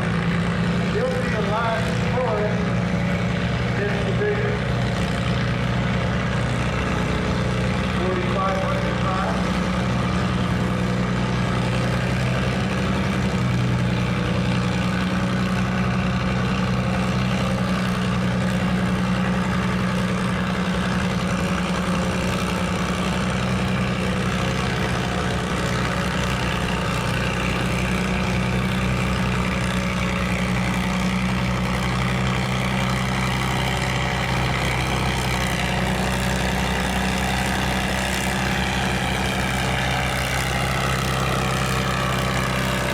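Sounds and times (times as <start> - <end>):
tractor engine idling: 0.0 - 42.9.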